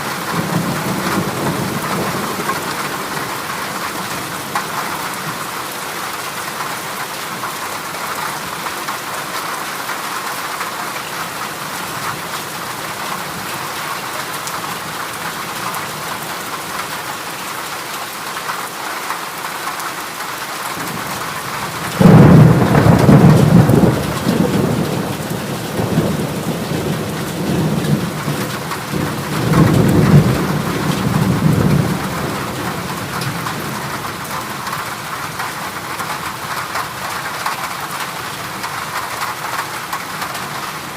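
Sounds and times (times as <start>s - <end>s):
heavy rain on a metal roof: 0.0s - 40.9s
thunder rumbling: 20.8s - 35.4s.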